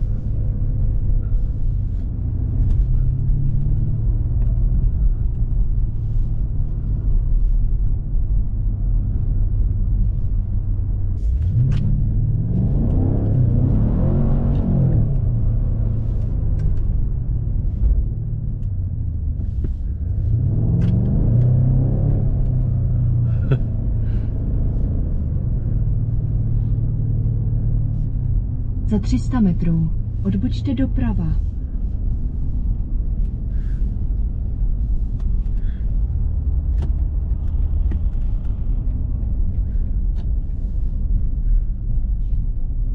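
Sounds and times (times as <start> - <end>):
car engine droning: 0.0 - 42.9.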